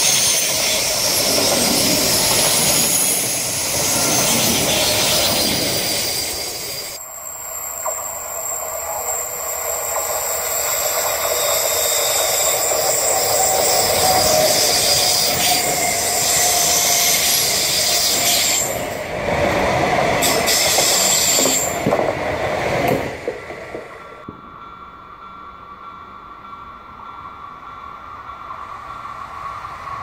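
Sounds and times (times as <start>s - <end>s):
wheel squeal: 0.0s - 19.0s
train wheels rumbling on rail: 0.0s - 30.0s.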